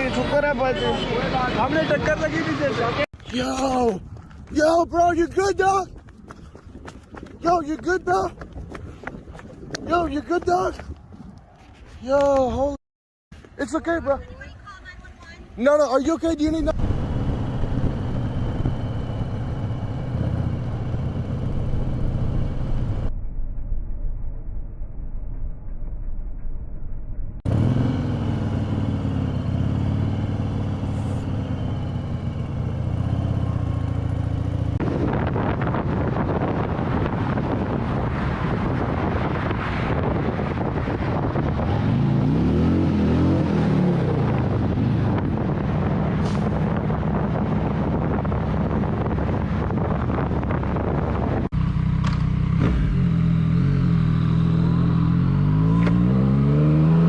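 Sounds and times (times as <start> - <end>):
wind and road noise: 0.0 - 57.0
vehicle engines revving: 27.5 - 57.0.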